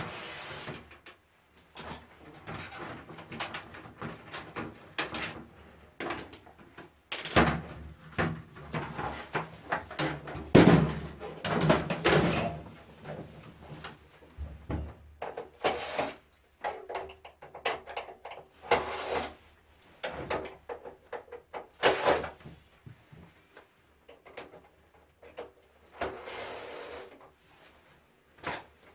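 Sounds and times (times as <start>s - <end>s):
plastic casing knocks and rattles: 7.1s - 12.6s.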